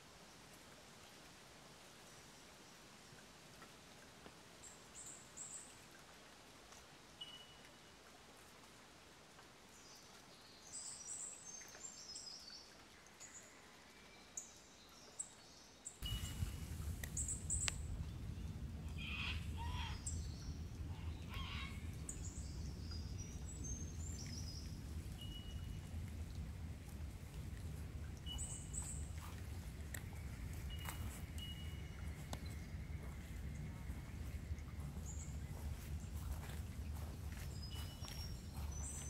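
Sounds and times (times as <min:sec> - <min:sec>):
small birds chirping: 0:15.0 - 0:39.0
steady low rumble: 0:16.0 - 0:39.0.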